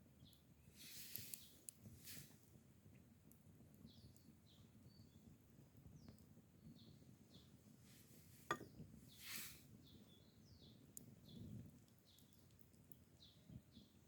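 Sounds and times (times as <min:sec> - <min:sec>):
faint bird chirps: 0:03.8 - 0:05.3, 0:09.1 - 0:12.6
brief soft hiss: 0:09.2 - 0:09.6.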